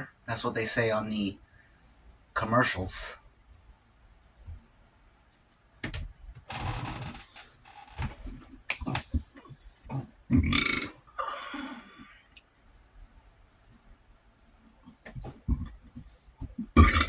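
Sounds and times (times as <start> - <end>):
man burping: 9.9 - 12.0, 16.6 - 17.0.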